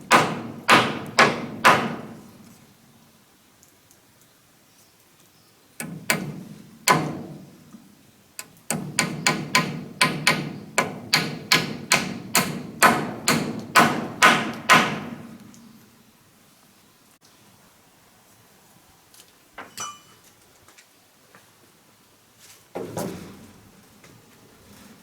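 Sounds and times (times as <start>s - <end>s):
hammering on wood: 0.0s - 2.2s, 5.8s - 7.5s, 8.7s - 15.3s.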